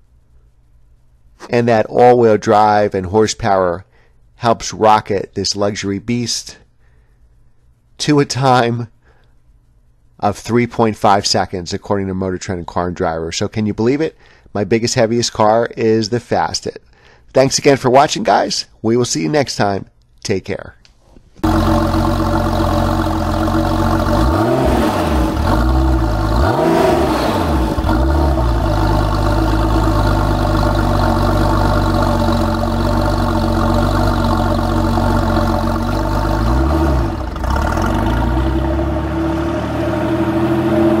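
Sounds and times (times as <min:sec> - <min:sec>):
car engine running: 0:21.4 - 0:41.0
engine revving: 0:21.4 - 0:41.0.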